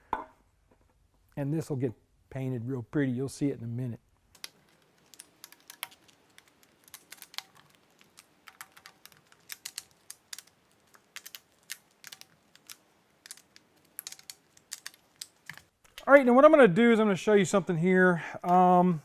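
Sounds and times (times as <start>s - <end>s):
small hard objects clicking: 4.3s - 16.1s.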